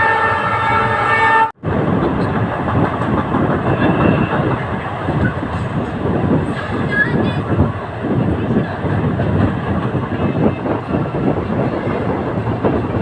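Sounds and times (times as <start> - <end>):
train horn: 0.0 - 1.6, 3.7 - 4.5
train coach rumbling on track: 0.0 - 13.0.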